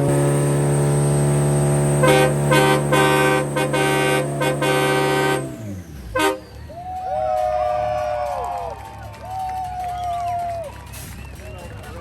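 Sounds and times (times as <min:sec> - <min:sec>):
car engine at high revs: 0:00.0 - 0:06.5
short car horn honks: 0:02.0 - 0:06.5.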